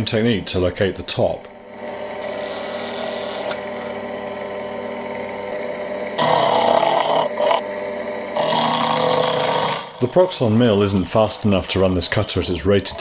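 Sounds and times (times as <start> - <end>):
milling machine motor running: 0.9 - 13.0
end mill cutting metal: 1.7 - 10.1.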